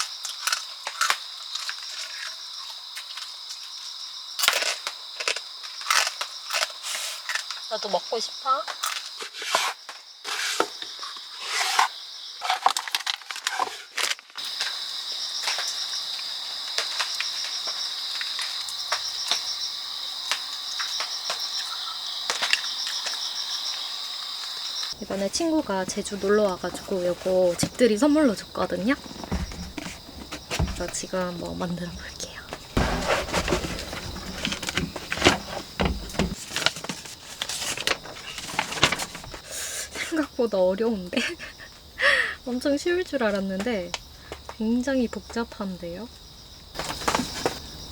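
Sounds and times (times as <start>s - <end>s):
crickets trilling: 0.0s - 47.9s
small object clicks and rustles: 11.7s - 14.4s
handling clicks and rustles: 25.0s - 39.4s.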